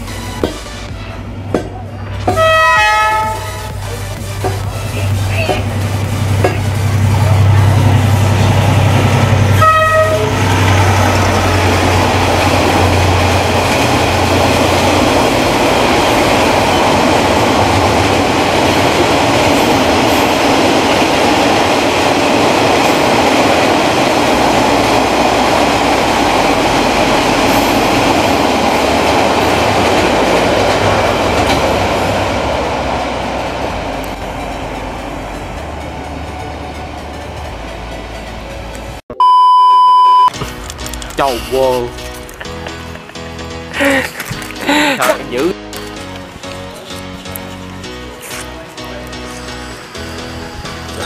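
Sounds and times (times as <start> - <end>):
train rumbling on rails: 0.0 - 39.0, 40.6 - 51.0
train horn tone: 2.2 - 5.0, 9.5 - 10.9.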